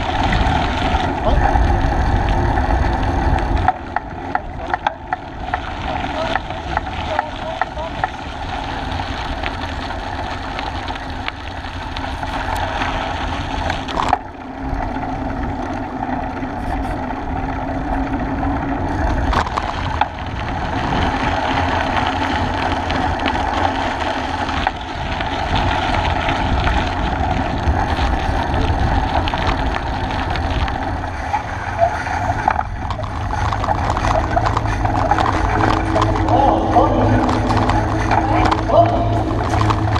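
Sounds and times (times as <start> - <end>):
wind noise: 0.0 - 14.2, 17.9 - 39.9
tyre rumble: 16.1 - 39.9.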